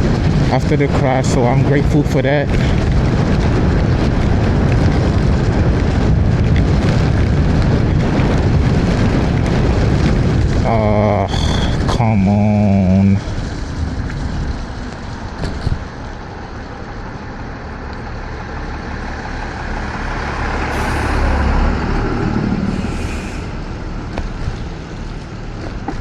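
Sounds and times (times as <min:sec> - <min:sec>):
low rumble: 0:00.0 - 0:26.0
wind and wet road rush: 0:00.0 - 0:26.0
louder hissing rush: 0:20.7 - 0:24.0.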